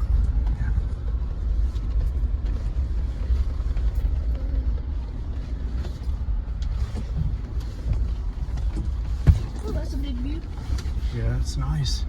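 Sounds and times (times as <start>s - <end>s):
engine and tyres rumbling: 0.0s - 12.0s
light knocks and rattles: 5.5s - 11.2s.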